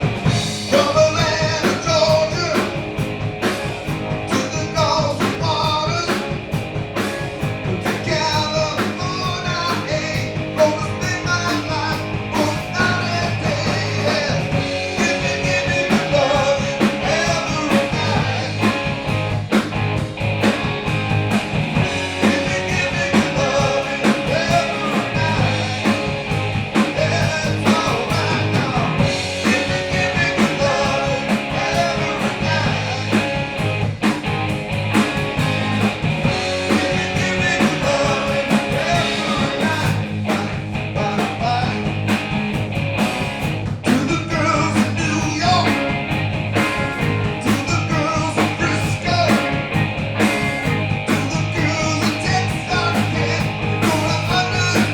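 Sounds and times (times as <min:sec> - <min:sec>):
electric guitar: 0:00.0 - 0:54.9
steady drum beat: 0:00.0 - 0:54.9
person singing: 0:08.1 - 0:18.9, 0:22.0 - 0:26.2, 0:26.8 - 0:33.4, 0:36.6 - 0:41.9, 0:51.1 - 0:54.9.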